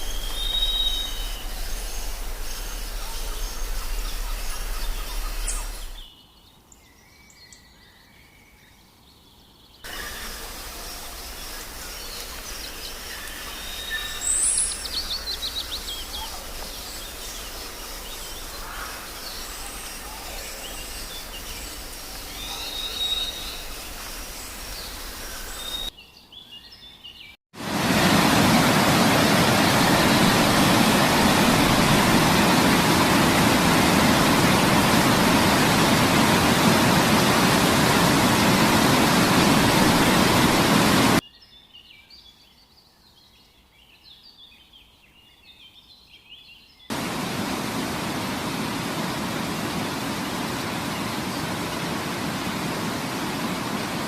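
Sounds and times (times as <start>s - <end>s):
bird chirps: 0.0s - 8.1s
loud steady rushing noise: 27.6s - 41.2s, 46.9s - 54.0s.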